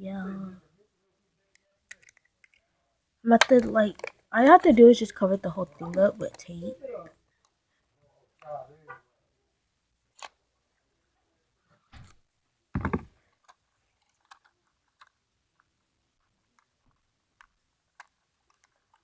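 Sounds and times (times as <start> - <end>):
small ticks and crinkles: 1.4 - 2.8, 3.4 - 8.7, 13.1 - 19.0.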